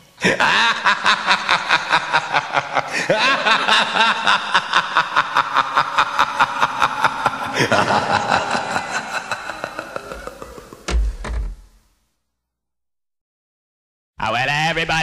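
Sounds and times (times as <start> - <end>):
laughter in short bursts: 0.2 - 10.9.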